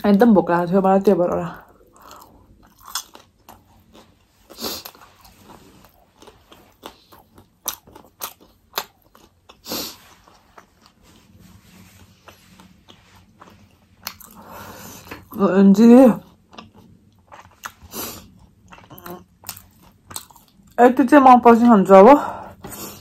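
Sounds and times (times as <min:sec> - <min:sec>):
person chewing crunchy food: 0:01.6 - 0:15.4, 0:16.2 - 0:20.8.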